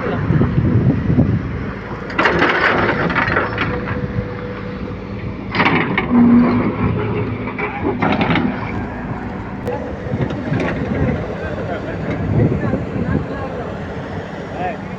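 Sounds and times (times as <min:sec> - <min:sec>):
excavator engine running: 0:00.0 - 0:14.9
clattering bursts: 0:02.0 - 0:04.4, 0:05.4 - 0:08.9.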